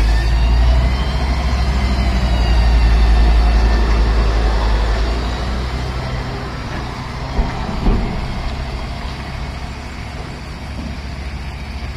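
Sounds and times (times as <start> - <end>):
truck engine idling: 0.0 - 11.9
short knocks: 6.8 - 11.0.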